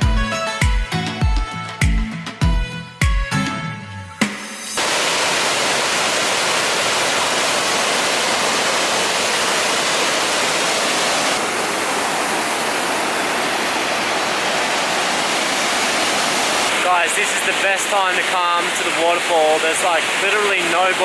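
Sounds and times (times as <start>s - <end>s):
waterfall roaring: 4.8s - 21.0s.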